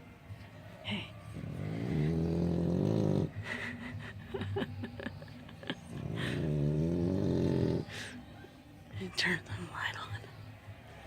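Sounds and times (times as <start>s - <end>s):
dog snoring: 1.3s - 3.4s, 5.9s - 8.2s.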